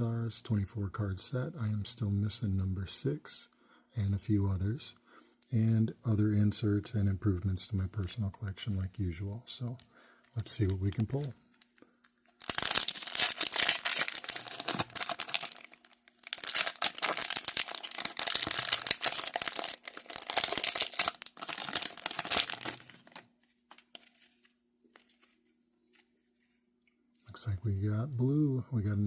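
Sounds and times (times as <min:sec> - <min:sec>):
card pack wrapper tearing and crinkling: 0:10.5 - 0:26.0.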